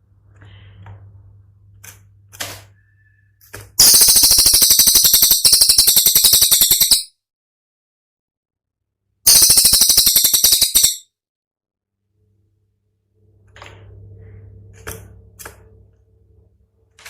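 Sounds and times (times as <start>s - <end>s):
bird rattling clicking call: 3.8s - 7.1s, 9.3s - 11.0s.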